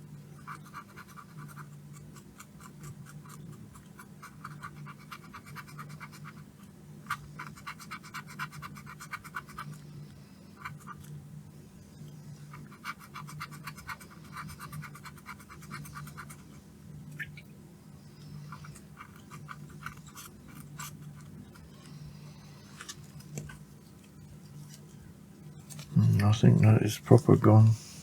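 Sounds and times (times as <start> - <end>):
steady low hum: 0.0 - 28.0
scratching on a circuit board: 0.4 - 9.8, 12.4 - 16.6, 18.5 - 21.7.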